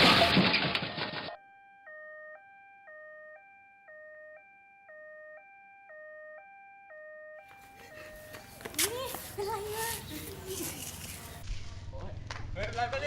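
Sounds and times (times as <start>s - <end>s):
two-tone ambulance siren: 1.3s - 8.7s.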